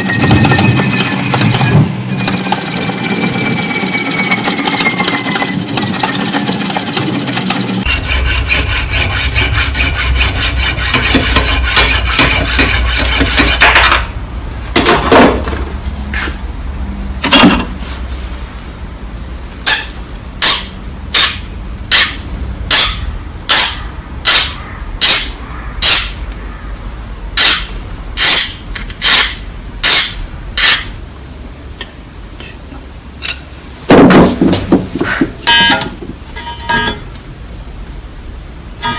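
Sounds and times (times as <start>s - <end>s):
power tool whining: 0.0s - 13.6s.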